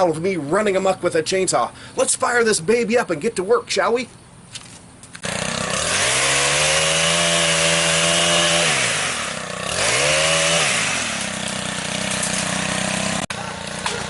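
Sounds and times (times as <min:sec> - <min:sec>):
chainsaw revving: 0:05.2 - 0:14.0.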